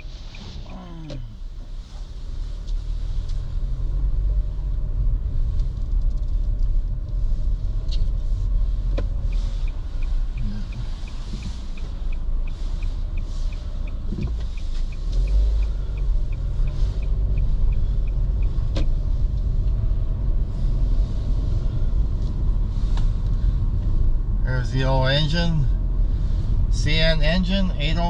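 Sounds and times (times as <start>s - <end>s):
car engine: 0.0s - 28.0s
road rumble: 0.0s - 28.0s.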